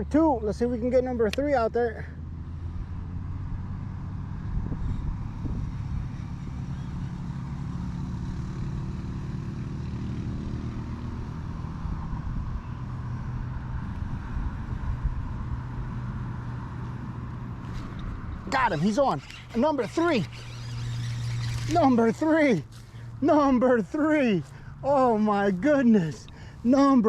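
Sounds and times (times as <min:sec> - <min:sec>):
low engine drone: 0:10.6 - 0:27.0.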